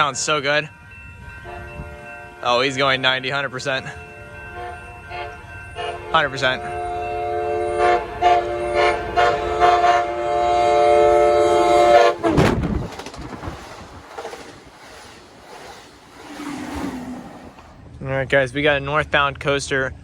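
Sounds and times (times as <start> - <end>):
rumble of passing train cars: 0.0 - 20.0
train horn blasts: 4.2 - 12.4
rush of air: 12.4 - 17.9.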